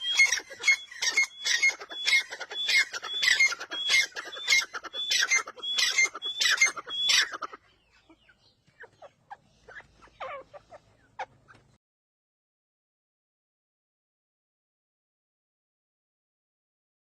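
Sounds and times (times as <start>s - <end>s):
francolin calling: 0.0s - 11.3s.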